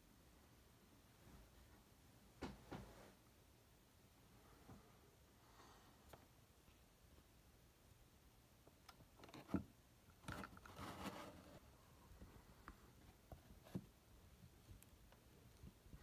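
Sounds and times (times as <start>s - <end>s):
scratchy rustle: 10.4s - 11.8s.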